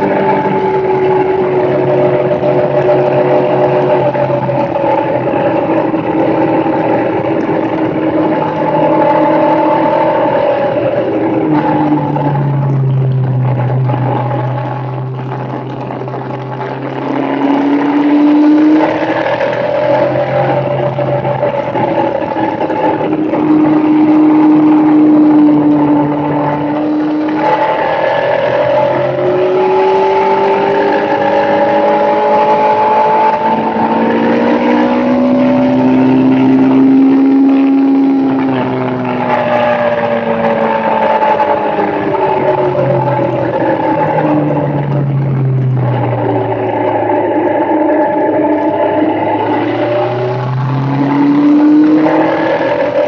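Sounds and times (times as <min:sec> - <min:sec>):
small motorbike revving: 0:00.0 - 0:53.0.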